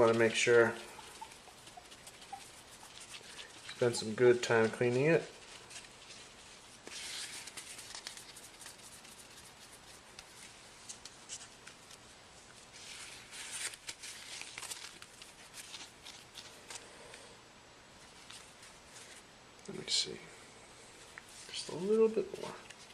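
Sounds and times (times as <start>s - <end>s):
cloth rubbing on screen: 0.0s - 12.0s, 12.6s - 16.8s.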